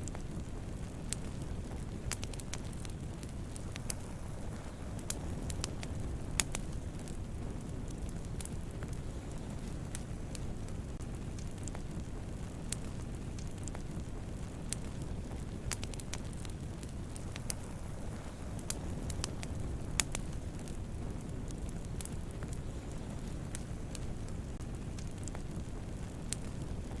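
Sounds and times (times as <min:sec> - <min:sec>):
campfire crackling: 0:00.0 - 0:27.0.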